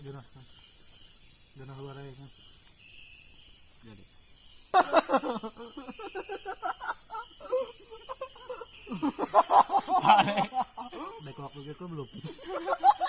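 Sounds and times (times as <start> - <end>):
crickets chirring: 0.0 - 13.0
people talking: 8.9 - 13.0.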